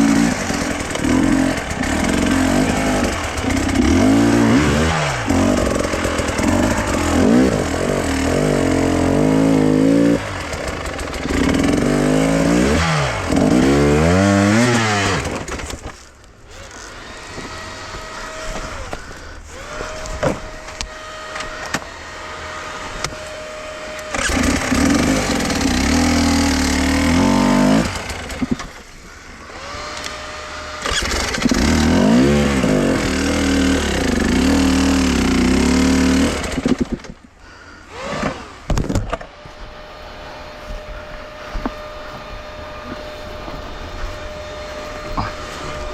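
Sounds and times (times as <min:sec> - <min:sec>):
motorcycle engine revving: 0:00.0 - 0:15.8, 0:16.5 - 0:28.8, 0:29.4 - 0:37.1, 0:37.9 - 0:38.7.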